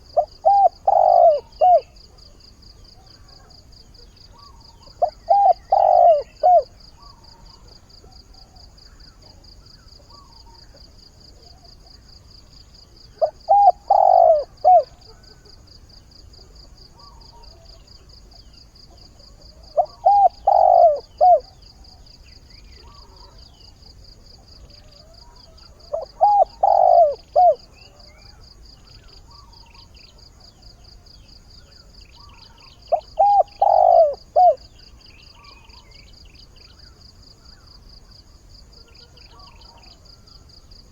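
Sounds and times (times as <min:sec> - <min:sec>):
dove cooing: 0:00.0 - 0:02.3, 0:04.3 - 0:08.7, 0:13.1 - 0:15.6, 0:19.1 - 0:22.0, 0:24.6 - 0:29.9, 0:32.2 - 0:34.8.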